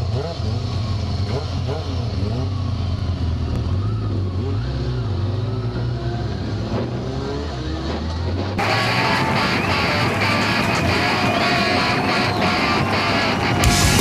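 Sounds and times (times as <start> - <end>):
motorcycle engine running: 0.0 - 14.0
guitar music: 8.6 - 14.0.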